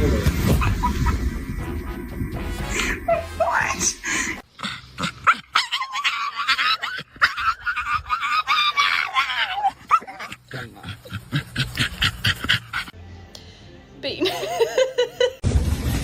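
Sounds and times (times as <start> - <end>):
dog whining: 5.2 - 12.9
dog panting: 10.4 - 13.0.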